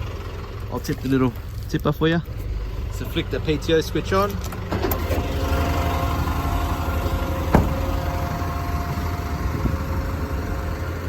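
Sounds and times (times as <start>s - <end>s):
diesel engine idling: 0.0s - 11.0s
hydraulic pump whine: 4.4s - 11.0s
sharp knock: 7.5s - 7.8s.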